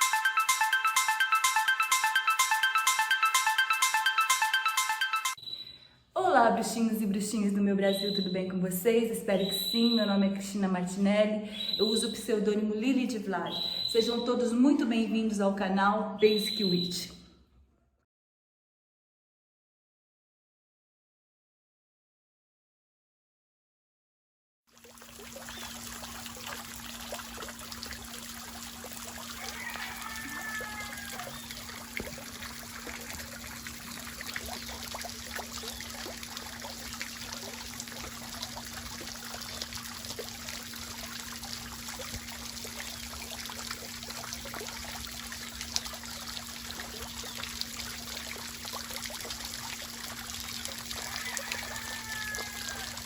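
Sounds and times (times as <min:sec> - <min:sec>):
sliding calls: 0:13.5 - 0:14.0
water trickling: 0:24.7 - 0:53.0.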